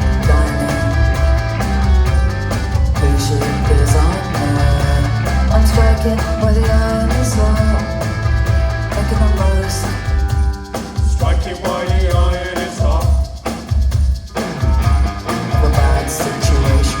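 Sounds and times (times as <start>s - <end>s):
loud bass line: 0.0s - 17.0s
rock band playing live: 0.0s - 17.0s.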